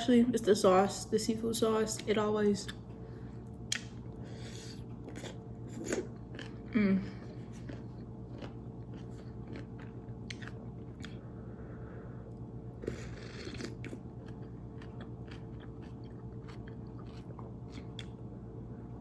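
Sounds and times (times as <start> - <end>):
steady low hum: 0.0 - 19.0
chewing noodles with mouth clicks: 4.6 - 6.7, 7.3 - 11.2, 12.3 - 18.2.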